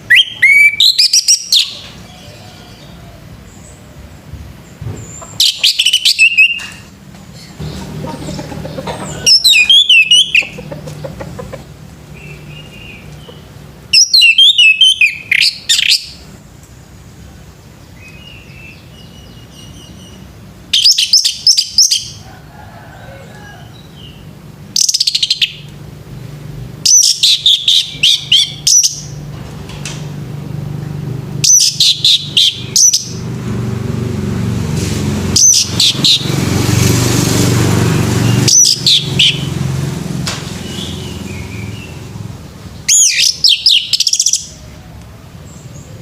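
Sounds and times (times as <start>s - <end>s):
thrush twittering song: 0.0s - 16.4s, 23.7s - 29.3s, 31.1s - 33.5s, 35.3s - 44.6s.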